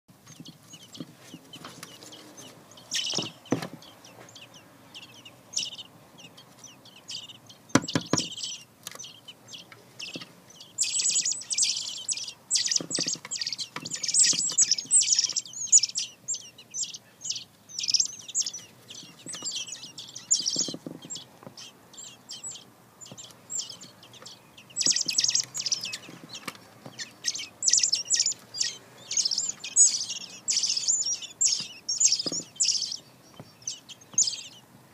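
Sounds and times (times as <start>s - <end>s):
bird chirping rapidly: 0.1s - 34.7s
sharp knocks: 3.1s - 3.9s, 7.7s - 8.4s.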